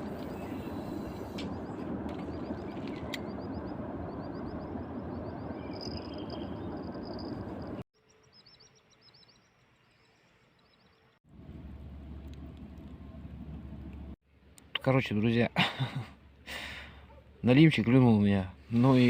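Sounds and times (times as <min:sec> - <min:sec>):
high chirping calls: 0:00.1 - 0:09.5.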